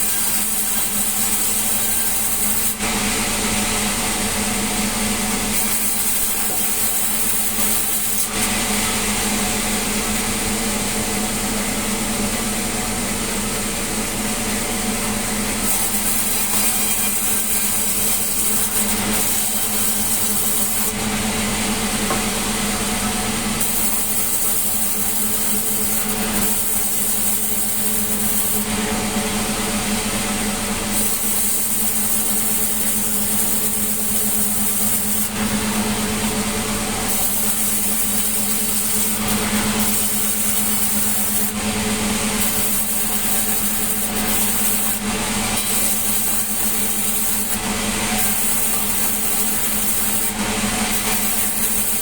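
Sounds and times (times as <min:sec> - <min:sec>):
sawmill saw cutting wood: 0:00.0 - 0:11.5, 0:14.6 - 0:52.0.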